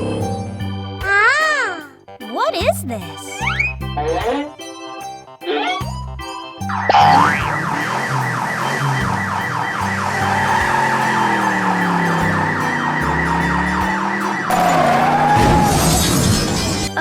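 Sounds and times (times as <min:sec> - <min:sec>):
cartoon alarm siren whoops: 0:06.8 - 0:16.4.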